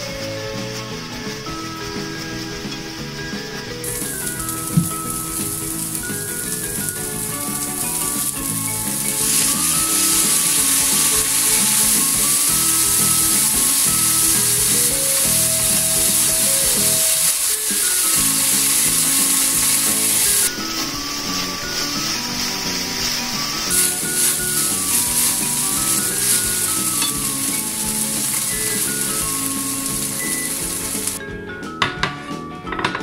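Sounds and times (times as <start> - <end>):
food sizzling in a frying pan: 3.8 - 31.2.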